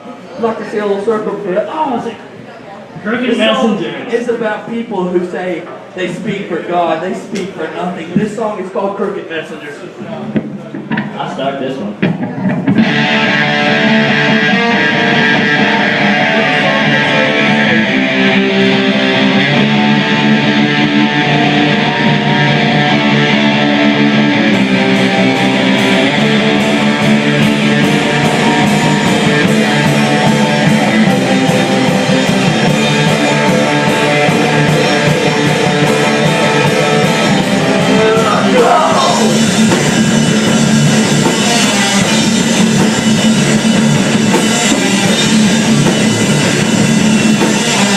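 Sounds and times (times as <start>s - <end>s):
heavy rock band playing: 12.0s - 47.9s
guitar pitch sliding down: 12.2s - 47.9s.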